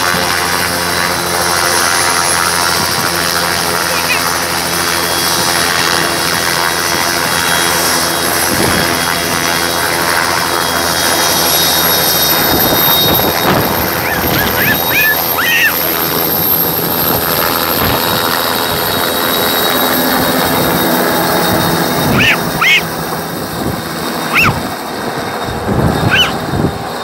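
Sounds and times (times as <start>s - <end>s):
helicopter engine whine: 0.0s - 27.0s
helicopter rotor noise: 0.0s - 27.0s
short rising-and-falling chirps: 12.7s - 16.6s, 21.0s - 22.9s, 24.3s - 24.6s, 26.0s - 26.4s.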